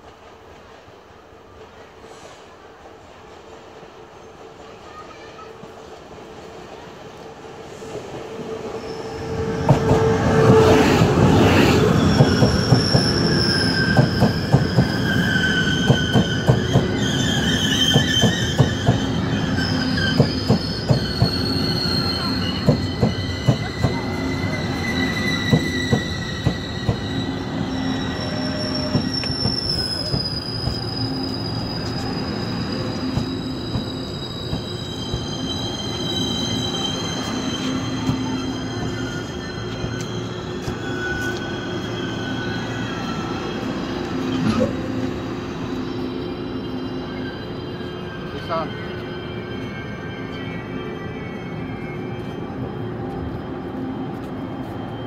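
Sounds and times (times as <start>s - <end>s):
high brake squeals: 7.6s - 55.0s
train wheels clicking over rail joints: 24.9s - 27.1s, 33.1s - 35.4s.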